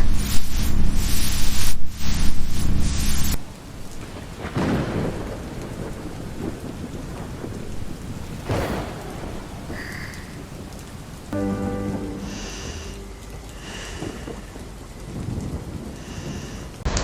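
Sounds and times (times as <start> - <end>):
heavy rain: 0.0 - 17.0
thunder rumbling: 0.0 - 17.0
low hum: 8.3 - 15.0.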